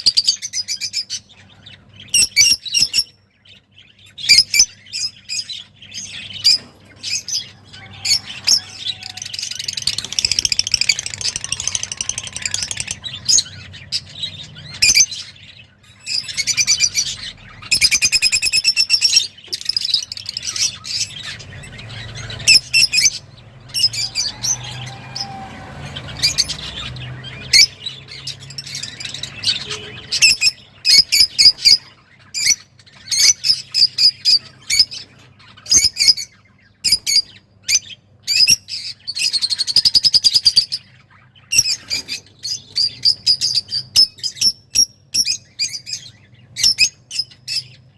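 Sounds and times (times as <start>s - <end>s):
cage birds chirping: 0.0s - 47.9s.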